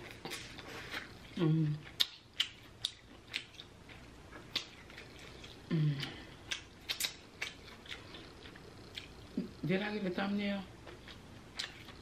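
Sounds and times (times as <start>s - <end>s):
chewing clicks and smacks: 1.8s - 9.3s, 10.9s - 12.0s
person humming: 5.7s - 6.3s.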